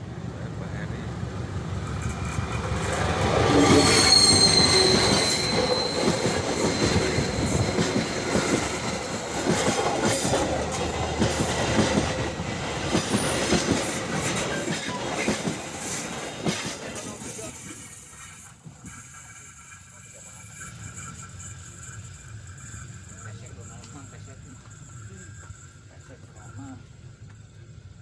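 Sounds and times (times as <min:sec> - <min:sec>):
train rumble: 0:00.0 - 0:28.0
wheels knocking on rail joints: 0:01.7 - 0:17.6
train wheels squealing on rails: 0:01.8 - 0:28.0.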